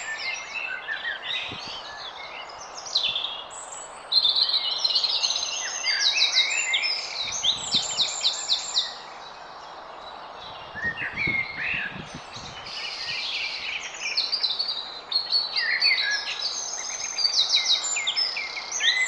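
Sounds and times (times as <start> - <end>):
bird trilling song: 0.0 - 9.3
songbirds singing: 0.0 - 19.0.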